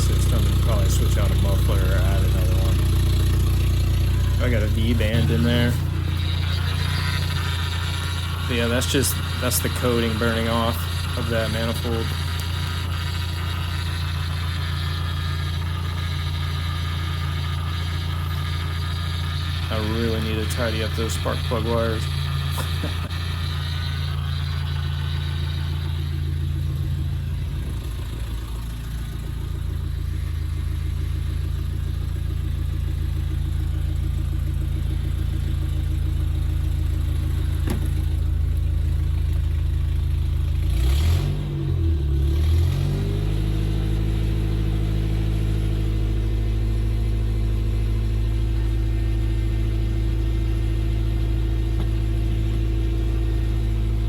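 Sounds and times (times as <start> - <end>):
engine running: 0.0 - 54.0.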